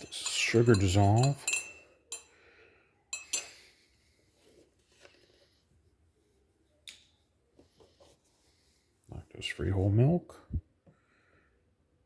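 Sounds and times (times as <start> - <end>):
spoon clinking against mug: 0.0 - 2.4, 3.1 - 3.7.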